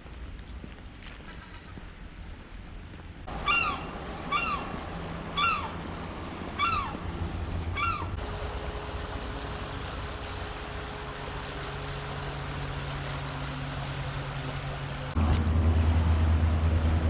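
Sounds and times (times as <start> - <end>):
low rumble: 1.2 - 17.0
steady hum: 1.8 - 17.0
bird calling rising note: 3.3 - 8.2.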